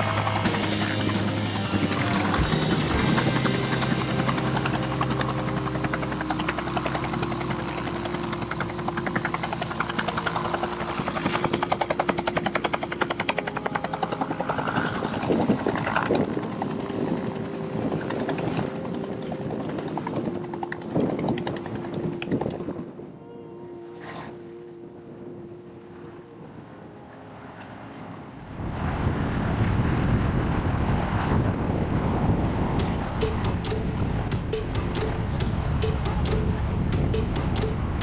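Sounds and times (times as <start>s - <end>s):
helicopter rotor beating: 0.0s - 22.7s, 32.7s - 38.0s
turbine tone: 0.0s - 38.0s.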